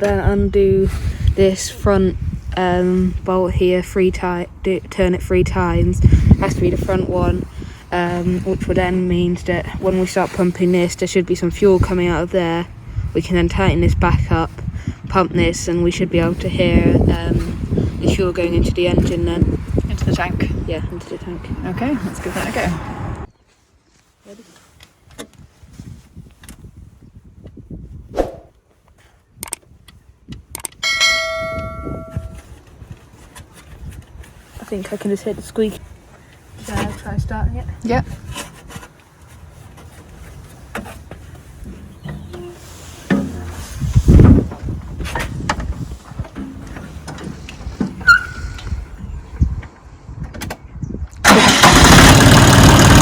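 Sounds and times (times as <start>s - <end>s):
diesel engine starting and running: 51.2s - 53.0s.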